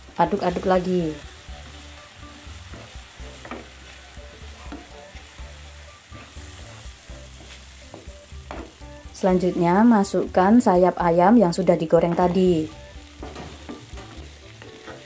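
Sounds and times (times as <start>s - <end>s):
paste sizzling in a frying pan: 0.0s - 15.0s
spatula scraping and tapping pan: 13.2s - 15.0s.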